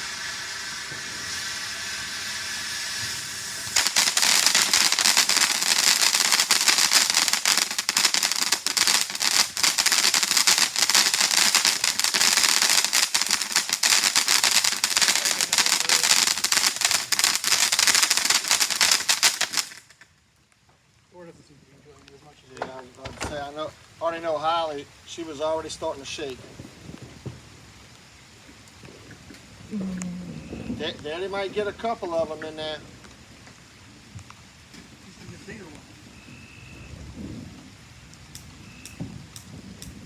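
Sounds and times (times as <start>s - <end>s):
steady hiss: 0.0s - 40.0s
firecracker pops and crackles: 3.4s - 20.2s, 38.1s - 40.0s.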